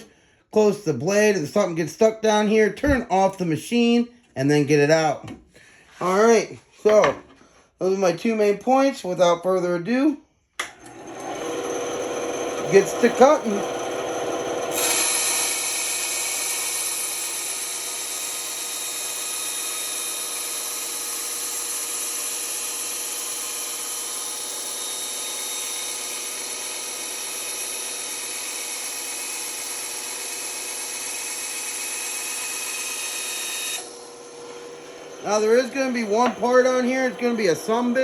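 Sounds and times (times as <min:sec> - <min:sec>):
band saw cutting wood: 0:10.6 - 0:38.0.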